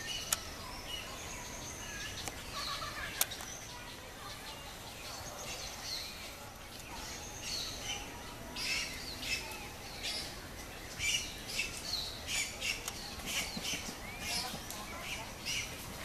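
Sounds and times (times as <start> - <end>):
wild birds chirping: 0.0 - 16.0.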